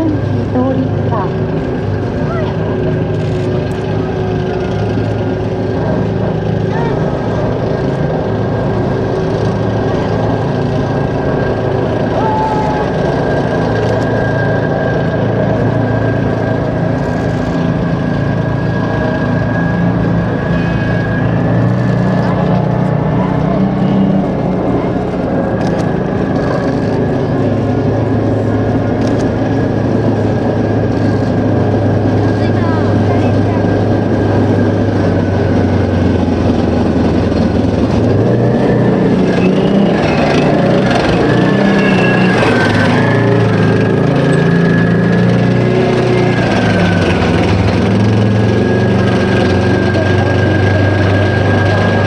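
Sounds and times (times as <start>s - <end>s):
diesel engines running: 0.0s - 52.0s
high whine: 0.0s - 52.0s
tanks driving past: 0.0s - 52.0s.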